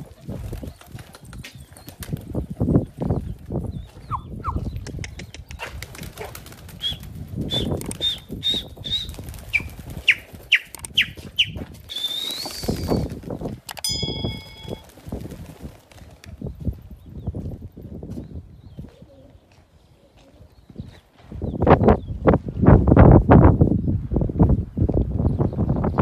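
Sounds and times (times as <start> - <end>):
small birds chirping: 0.0 - 13.2, 16.3 - 22.3
pigeon wings flapping: 0.1 - 2.4, 5.7 - 13.7.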